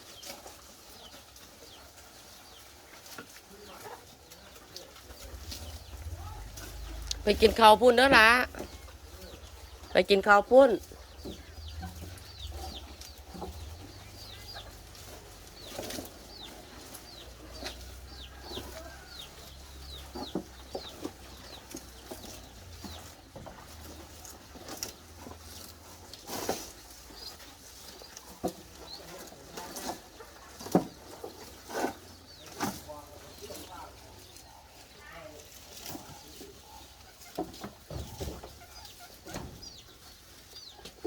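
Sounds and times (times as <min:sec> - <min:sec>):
bird chirping: 0:05.2 - 0:23.8, 0:36.1 - 0:41.0
knocks and rustles: 0:10.8 - 0:33.6, 0:37.2 - 0:40.2.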